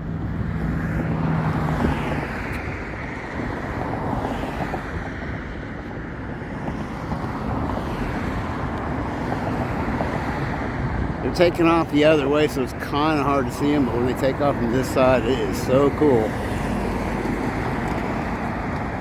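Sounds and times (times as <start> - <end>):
wind on microphone: 0.0 - 13.1
road traffic going by: 0.0 - 19.0.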